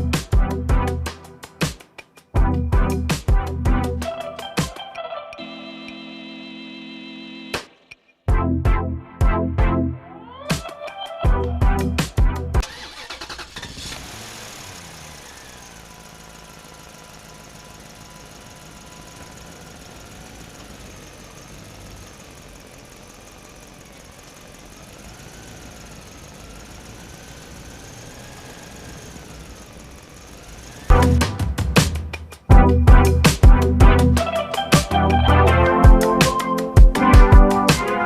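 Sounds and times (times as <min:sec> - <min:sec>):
electronic music: 0:02.4 - 0:12.6, 0:30.9 - 0:38.0
vehicle engine running: 0:11.3 - 0:38.0.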